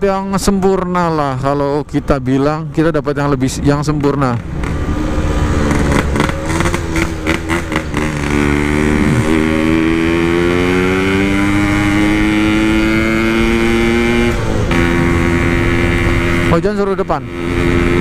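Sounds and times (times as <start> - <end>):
two-stroke motorcycle engine revving: 3.8 - 18.0.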